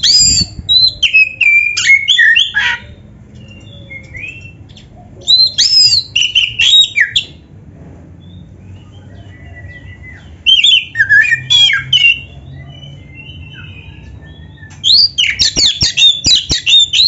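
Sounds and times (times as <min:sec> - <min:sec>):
bird singing whistled phrases: 0:00.0 - 0:02.6, 0:05.2 - 0:07.4, 0:09.0 - 0:17.0.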